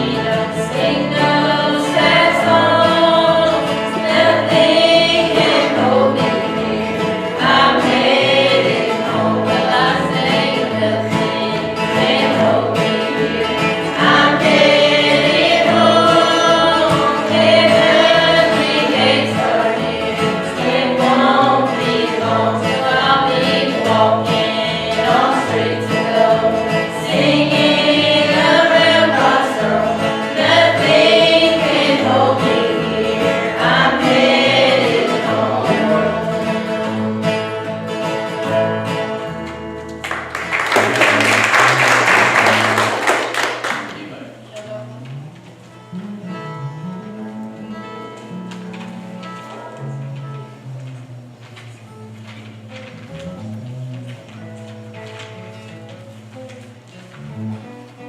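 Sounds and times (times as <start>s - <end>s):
choir singing gospel song: 0.0s - 44.0s
instrumental accompaniment: 0.0s - 58.0s.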